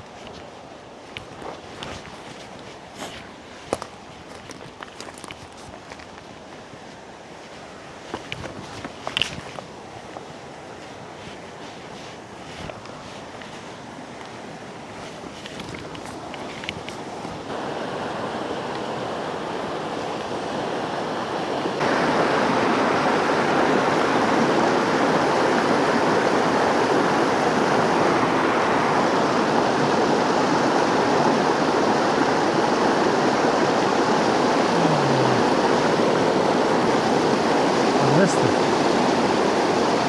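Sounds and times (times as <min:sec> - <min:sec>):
water rushing over rocks: 0:12.6 - 0:40.0.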